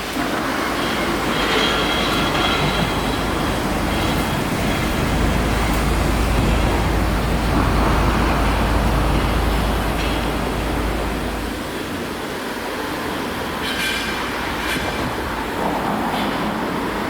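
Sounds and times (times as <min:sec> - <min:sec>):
train rushing past: 0:00.0 - 0:17.0
deep low rumble: 0:02.8 - 0:11.8.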